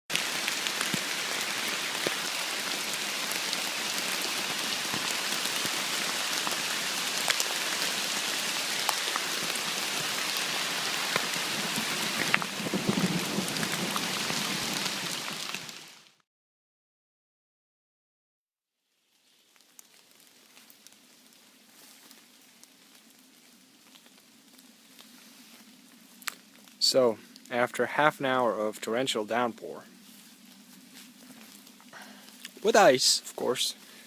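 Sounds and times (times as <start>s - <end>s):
heavy rain falling: 0.1s - 16.2s, 31.3s - 34.0s.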